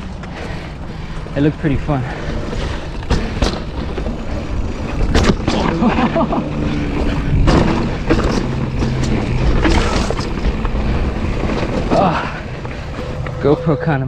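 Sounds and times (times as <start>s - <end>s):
bike tyres rolling over rock: 0.0s - 14.0s
bike jolting knocks: 7.0s - 13.3s.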